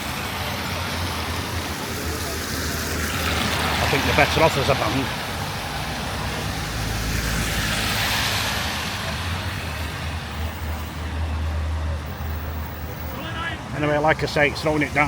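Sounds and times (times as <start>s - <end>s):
tyre hiss on wet road: 0.0s - 10.9s.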